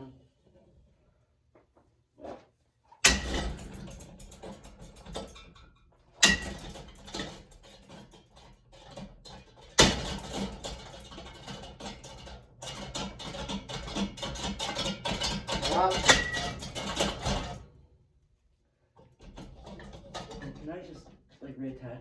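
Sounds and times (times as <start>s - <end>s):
metal parts rattling: 3.1s - 17.6s.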